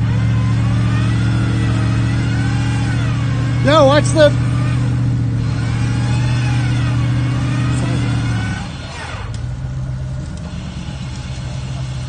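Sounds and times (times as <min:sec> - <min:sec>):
high whine sliding up and down: 0:00.0 - 0:12.0
off-road vehicle engine revving: 0:00.0 - 0:12.0.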